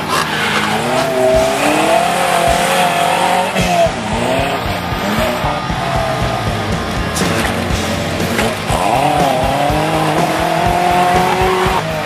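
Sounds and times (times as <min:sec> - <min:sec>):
off-road engine revving: 0:00.0 - 0:12.0.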